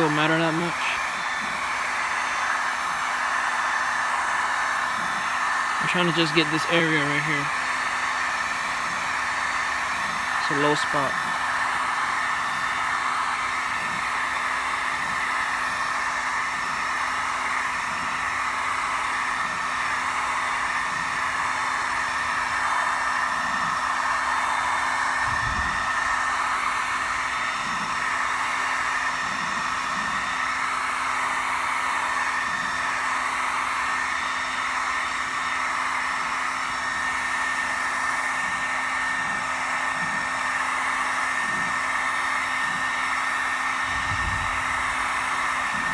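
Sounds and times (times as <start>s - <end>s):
heat gun whirring: 0.0s - 45.9s.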